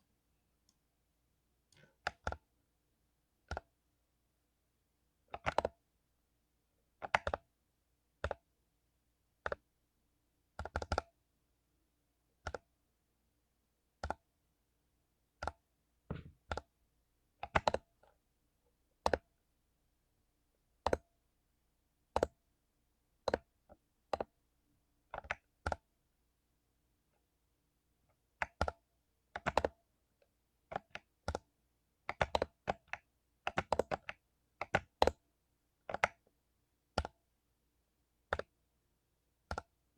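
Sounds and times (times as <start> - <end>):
mechanical keyboard typing: 5.3 - 5.8, 7.0 - 7.5, 10.6 - 11.1, 17.4 - 17.8, 22.2 - 22.4, 25.1 - 25.8, 28.4 - 28.8, 29.4 - 29.8, 32.1 - 35.2, 35.9 - 36.3, 37.0 - 37.2, 38.3 - 38.5, 39.4 - 39.8.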